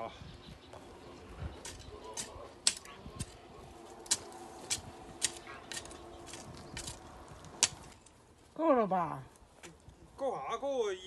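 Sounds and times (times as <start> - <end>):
hoe chopping into soil: 4.0 - 7.0.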